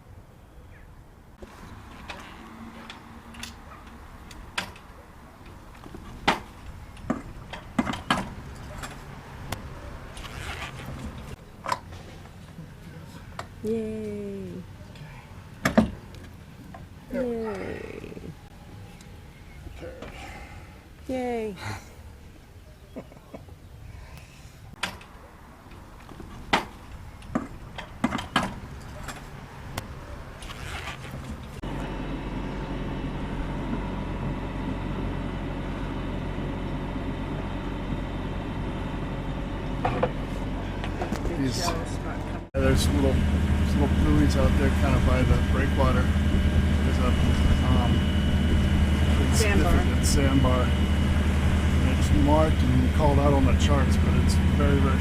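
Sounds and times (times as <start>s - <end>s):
low steady rumble: 31.1s - 55.0s.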